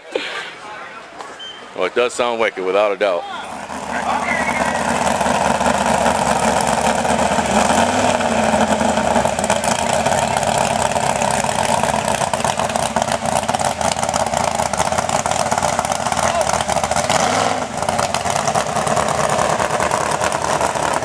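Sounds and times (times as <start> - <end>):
loud engine running: 3.4 - 21.0.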